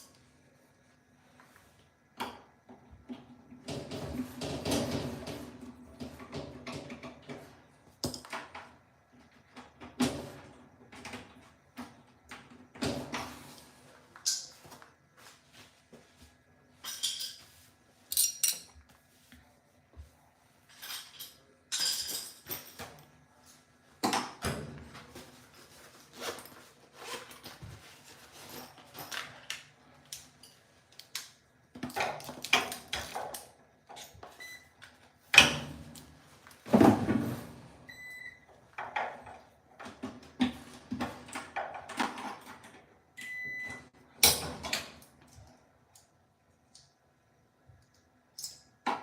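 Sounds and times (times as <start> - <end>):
metal parts and tools clinking: 18.1 - 18.8, 20.7 - 22.8.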